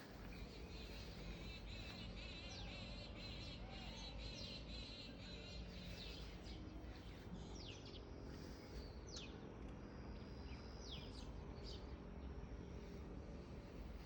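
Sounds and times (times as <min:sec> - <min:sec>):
birds chirping: 0:00.0 - 0:09.4
steady low background noise: 0:00.0 - 0:14.0.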